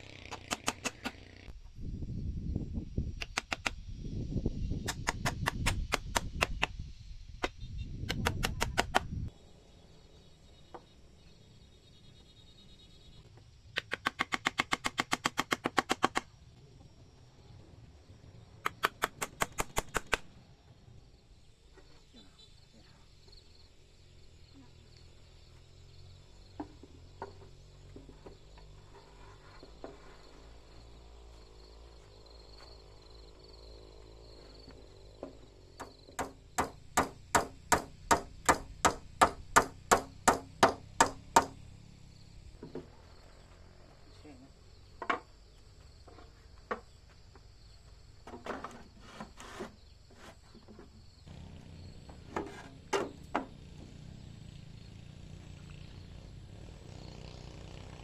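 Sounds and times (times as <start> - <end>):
hammer driving nails into wood: 0.3 - 1.2, 3.2 - 3.7, 4.9 - 6.7, 13.8 - 16.3, 18.7 - 20.2, 35.8 - 41.6.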